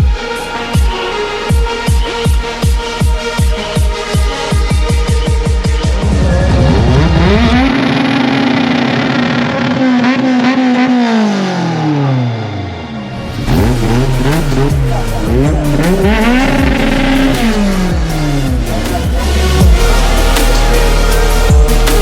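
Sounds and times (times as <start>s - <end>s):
deep bass beat: 0.0s - 9.0s, 13.2s - 22.0s
electronic dance music: 0.0s - 22.0s
race car engines revving: 4.4s - 22.0s.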